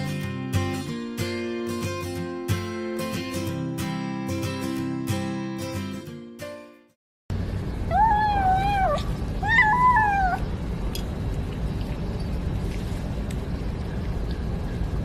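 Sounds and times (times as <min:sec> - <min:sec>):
low background rumble: 0:07.3 - 0:15.0
cat meowing: 0:07.9 - 0:10.5.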